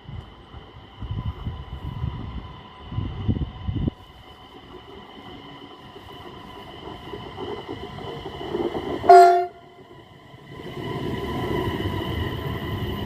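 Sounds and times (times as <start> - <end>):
electric train rumbling: 0.0 - 13.0
train horn blast: 9.1 - 9.7.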